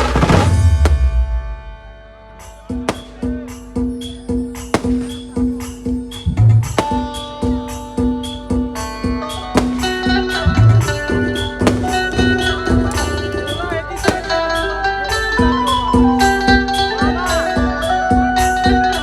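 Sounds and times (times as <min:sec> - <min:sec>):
steady drum beat: 0:02.9 - 0:03.5, 0:04.6 - 0:08.7, 0:09.5 - 0:14.5.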